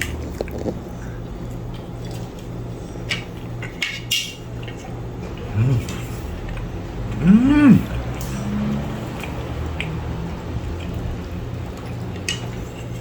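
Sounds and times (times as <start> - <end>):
person humming: 5.4 - 6.1, 7.1 - 8.7.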